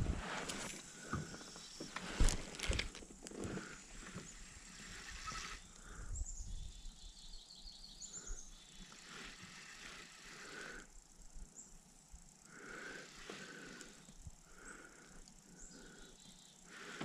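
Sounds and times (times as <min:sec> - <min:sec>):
faint outdoor hiss: 0:00.0 - 0:17.0
small bird chirping: 0:04.2 - 0:10.4, 0:15.5 - 0:17.0.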